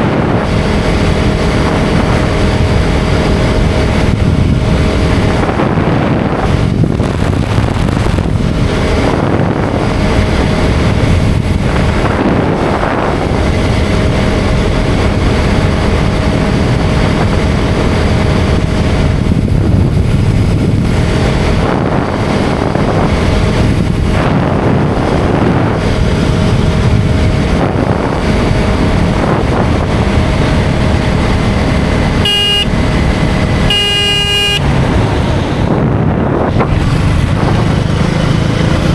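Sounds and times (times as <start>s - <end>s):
motorcycle engine running: 0.0s - 38.9s
wind and road noise: 0.0s - 38.9s
vehicle horn honk: 32.2s - 32.7s, 33.7s - 34.8s.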